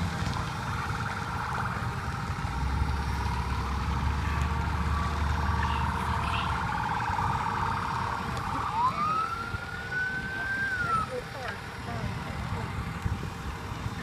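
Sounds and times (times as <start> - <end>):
low engine rumble: 0.0 - 14.0
pulsing emergency siren: 3.1 - 14.0.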